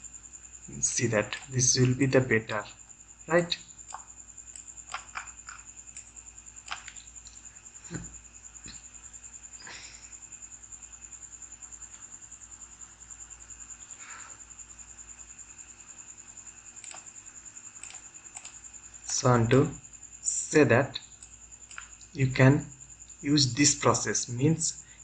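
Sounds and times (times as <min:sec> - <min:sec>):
computer mouse clicks: 0:03.8 - 0:07.4, 0:16.8 - 0:17.1, 0:17.8 - 0:18.6, 0:21.0 - 0:22.1.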